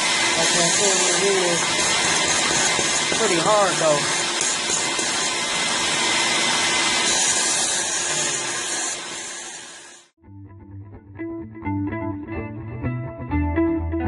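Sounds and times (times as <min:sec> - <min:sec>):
drain machine hissing and humming: 0:00.0 - 0:10.1
guitar music: 0:10.2 - 0:14.0.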